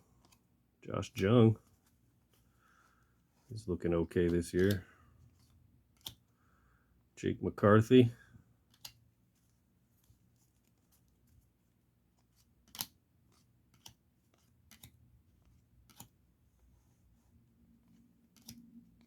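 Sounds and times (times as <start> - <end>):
trading cards clicking: 4.2 - 5.0, 5.9 - 6.2, 12.6 - 15.0, 15.8 - 16.2, 18.2 - 19.0.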